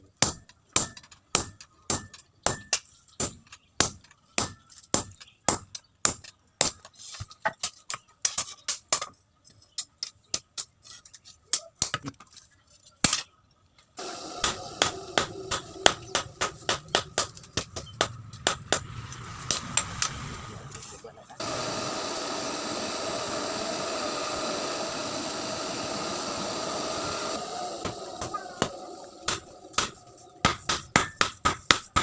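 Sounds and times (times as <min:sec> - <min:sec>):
hammer striking steel on anvil: 0:00.2 - 0:06.8, 0:14.0 - 0:20.2, 0:27.8 - 0:32.0
steady rushing noise: 0:14.0 - 0:30.4.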